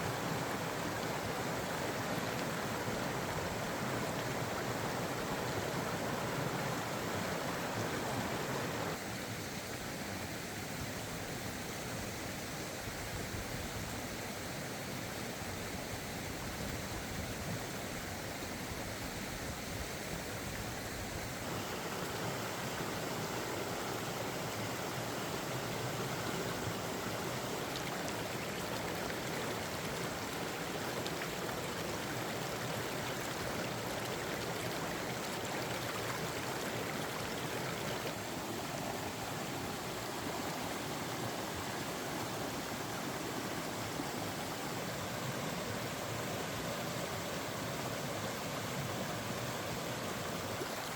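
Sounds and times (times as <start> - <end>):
mountain stream flowing: 0.0 - 50.9.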